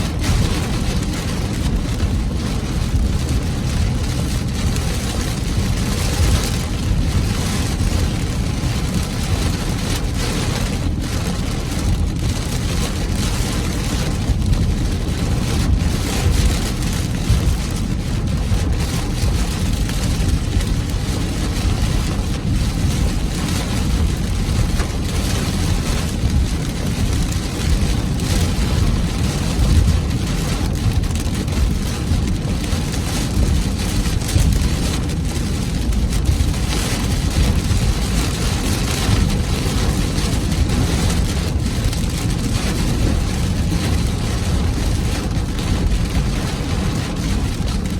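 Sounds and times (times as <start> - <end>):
heavy rain on car roof: 0.0 - 47.9.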